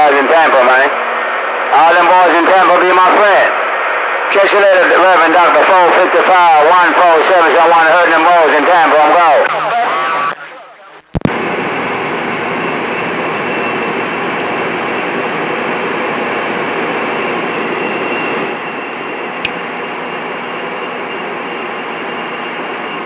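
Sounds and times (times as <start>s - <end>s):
radio static hiss: 0.0s - 12.1s.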